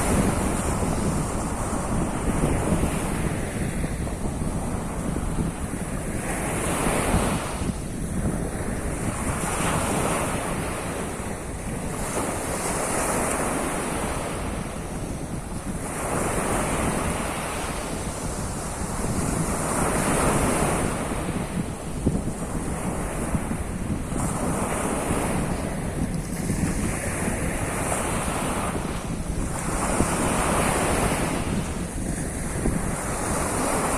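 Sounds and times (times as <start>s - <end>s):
waves breaking on shore: 0.0s - 33.9s
wind rumble on microphone: 0.0s - 33.9s.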